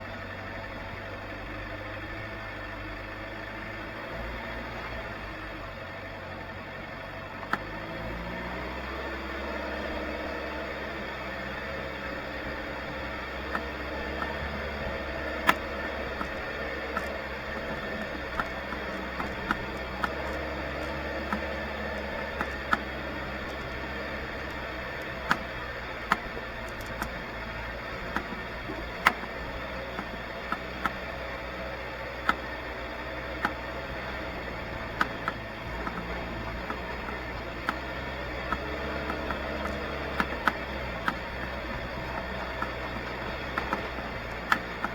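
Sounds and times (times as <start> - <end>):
vehicle engine idling: 0.0 - 44.9
sharp clicks and taps: 11.5 - 44.9.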